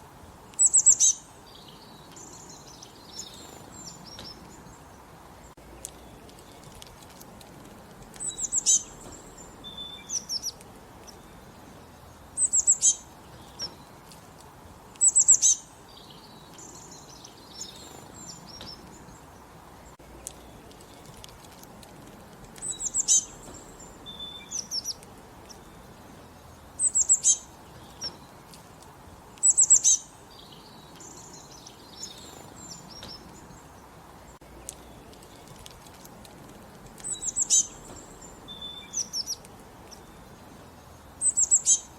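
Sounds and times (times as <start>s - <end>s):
faint background hiss: 0.0s - 41.9s
songbird singing: 0.0s - 41.9s.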